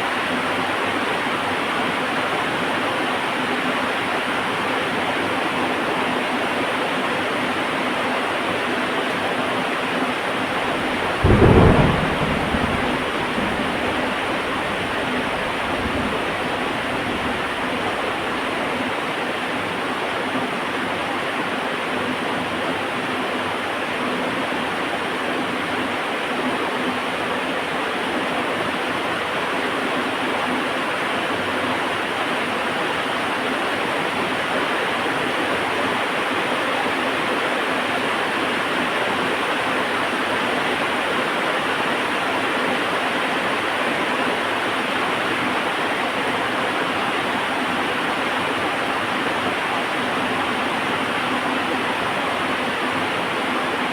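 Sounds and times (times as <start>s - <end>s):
heavy rain falling: 7.0s - 53.9s
thunder clap with rumble: 10.4s - 18.8s.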